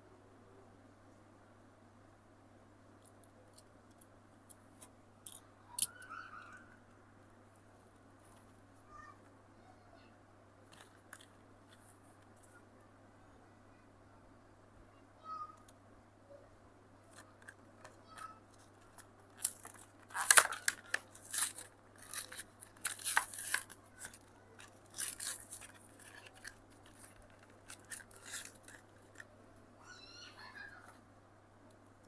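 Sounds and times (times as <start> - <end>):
plastic crackling: 17.1 - 29.4
card tearing: 18.8 - 29.3.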